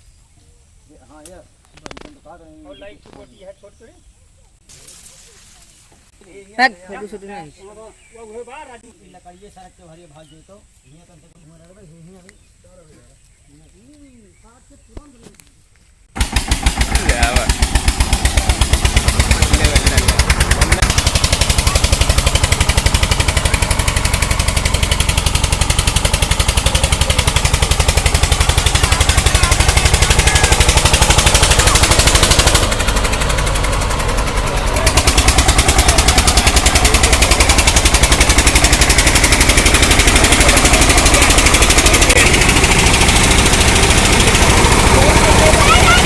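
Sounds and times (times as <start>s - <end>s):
tractor engine running: 16.0s - 46.0s.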